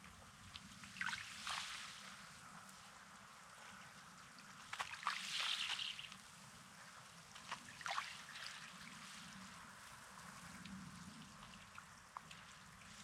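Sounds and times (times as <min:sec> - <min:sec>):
small waves washing over shore: 0:00.4 - 0:13.0.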